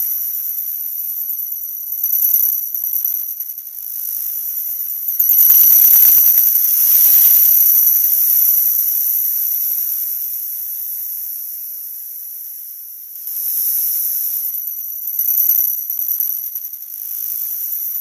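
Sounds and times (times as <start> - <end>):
high-pitched static hiss: 0.0 - 18.0.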